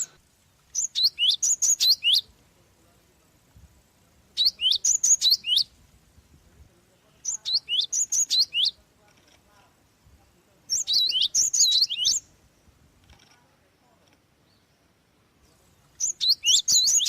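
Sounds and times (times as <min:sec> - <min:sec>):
sparrow whistled calls: 0:00.7 - 0:02.3, 0:04.4 - 0:05.7, 0:07.2 - 0:08.8, 0:10.7 - 0:12.3, 0:16.0 - 0:17.0.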